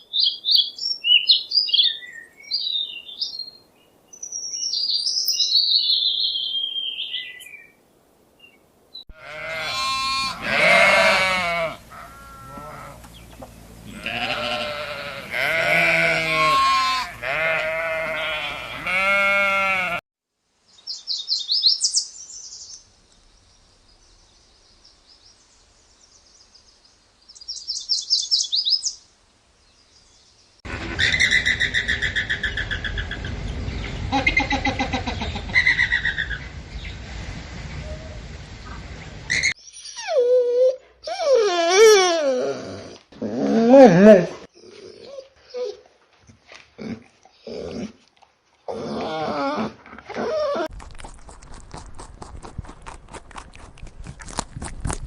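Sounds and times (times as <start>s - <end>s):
high chirping bird song: 0.0s - 7.7s, 23.5s - 29.0s, 39.3s - 40.2s
animal bleating: 9.1s - 20.0s.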